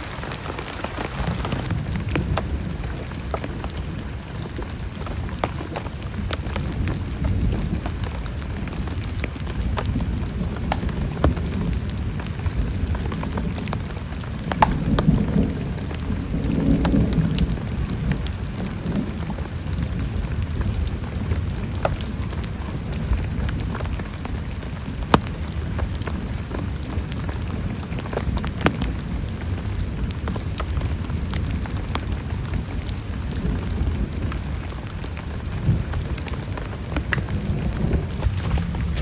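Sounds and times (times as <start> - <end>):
low roll of thunder: 0.0 - 21.8, 35.4 - 39.0
heavy rain falling: 0.0 - 39.0
raindrops ticking on a surface: 0.0 - 39.0.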